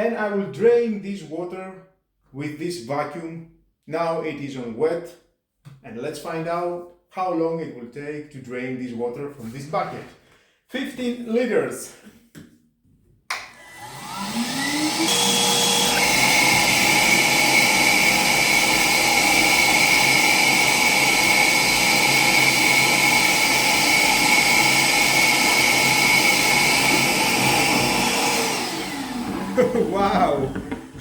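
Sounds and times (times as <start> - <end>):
vacuum motor whine: 13.5 - 31.0
vacuum sucking water: 13.8 - 31.0.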